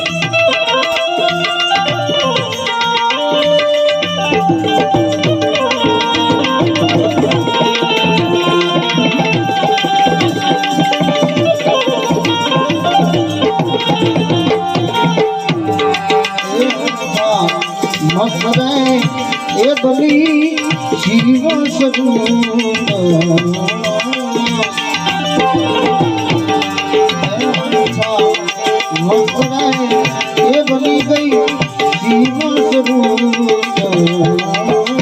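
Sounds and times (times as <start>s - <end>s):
melodic instrument gliding tune: 0.0s - 35.0s
tabla drumming: 0.0s - 35.0s.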